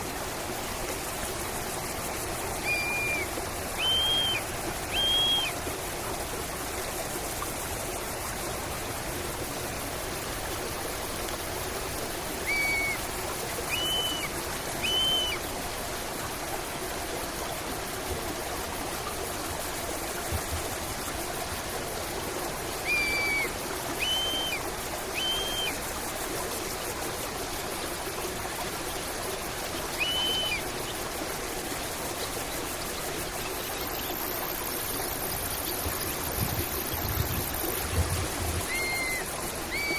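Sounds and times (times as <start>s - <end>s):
stream flowing: 0.0s - 39.9s
bird calling: 2.6s - 5.6s, 12.4s - 13.0s, 13.7s - 15.4s, 22.8s - 25.8s, 30.0s - 30.6s, 38.6s - 39.9s.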